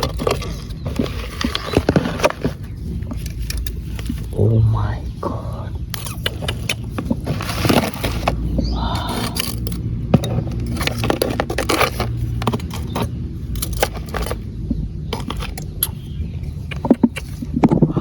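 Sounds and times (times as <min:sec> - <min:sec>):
snail shells clicking and scraping: 0:00.0 - 0:04.4, 0:05.8 - 0:18.0
steady low hum: 0:00.0 - 0:18.0.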